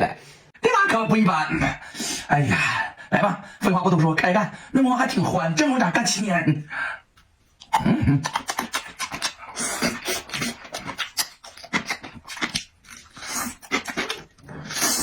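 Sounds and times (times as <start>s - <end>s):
person chewing and lip-smacking: 7.6s - 15.0s.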